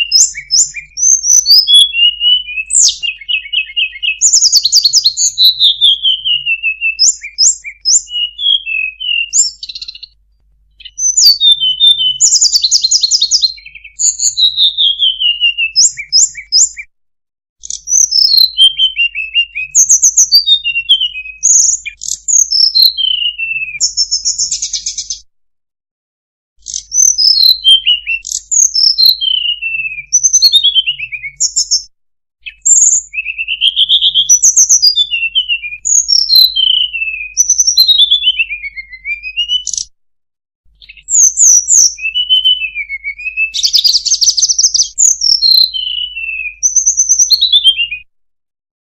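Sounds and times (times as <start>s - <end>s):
bird whistling and trilling: 0.0s - 10.2s, 10.8s - 16.9s, 17.6s - 25.2s, 26.6s - 39.9s, 40.8s - 48.1s.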